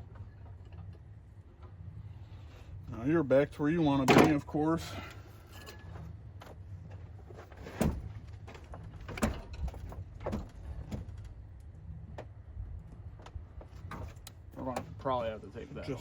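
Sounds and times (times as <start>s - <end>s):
low steady hum: 0.0s - 16.0s
tools knocking and clattering: 4.0s - 4.4s.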